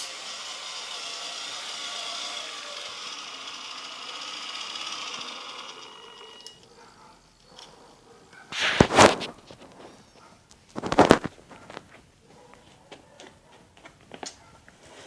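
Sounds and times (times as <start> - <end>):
small electric motor whine: 0.0 - 6.7.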